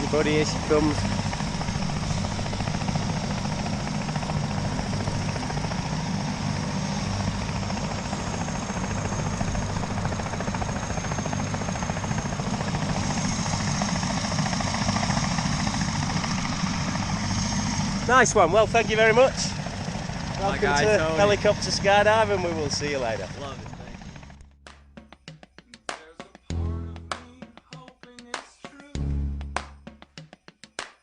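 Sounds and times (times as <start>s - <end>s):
helicopter rotor chop: 0.0s - 24.5s
turbine whine: 0.0s - 24.5s.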